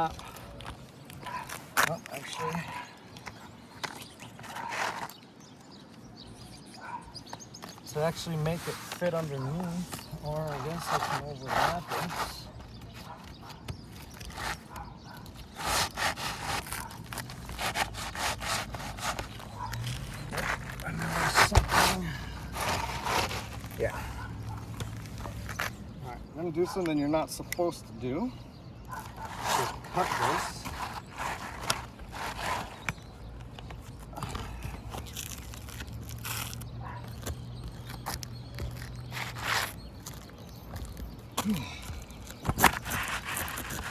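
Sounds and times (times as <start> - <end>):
shingles scraping together: 3.8 - 5.2, 7.8 - 24.1, 29.0 - 33.8, 42.4 - 43.9.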